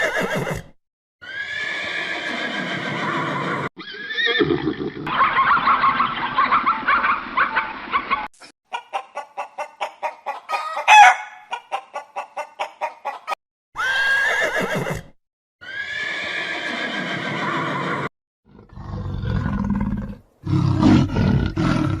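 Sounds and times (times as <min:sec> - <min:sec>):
horse whinny: 0:00.0 - 0:05.1, 0:13.8 - 0:18.1
loud rising animal cry: 0:01.2 - 0:07.5, 0:15.6 - 0:22.0
animal roar: 0:16.0 - 0:22.0.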